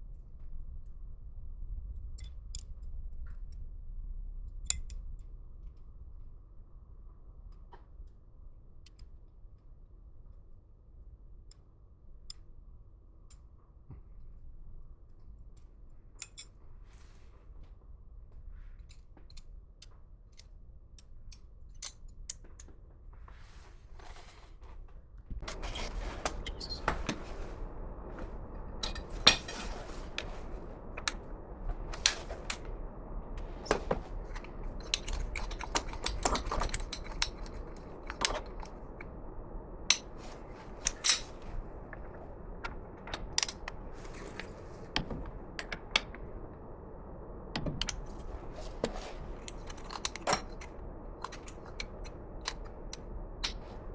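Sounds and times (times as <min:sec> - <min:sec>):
steady rushing noise: 0:25.3 - 0:53.9
metal tools clinking: 0:25.4 - 0:32.7, 0:33.4 - 0:39.2, 0:39.9 - 0:46.1.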